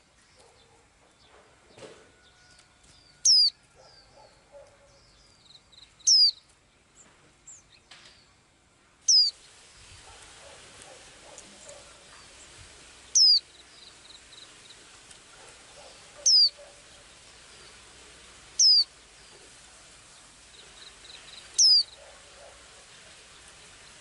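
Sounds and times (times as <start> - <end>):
bird downward-slurred whistle: 6.1 - 6.3, 9.1 - 9.3, 13.2 - 13.4, 16.2 - 16.6, 18.6 - 18.9, 21.6 - 22.0.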